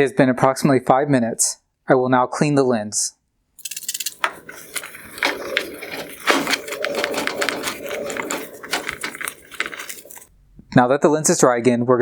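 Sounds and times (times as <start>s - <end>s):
small clicks: 3.6s - 10.3s
towel rubbing plastic lens: 3.6s - 10.3s.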